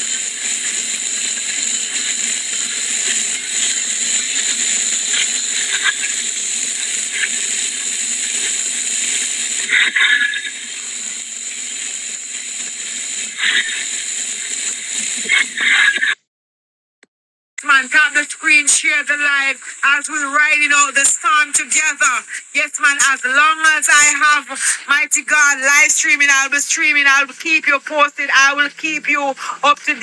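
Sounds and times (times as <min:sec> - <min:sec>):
rain: 0:00.0 - 0:15.5.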